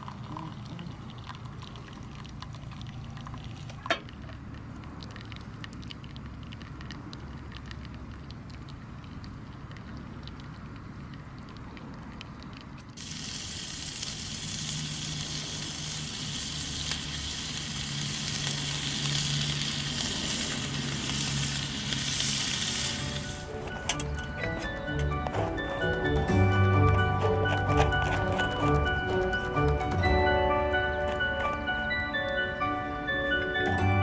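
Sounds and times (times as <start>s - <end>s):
steady hiss: 13.0s - 24.2s.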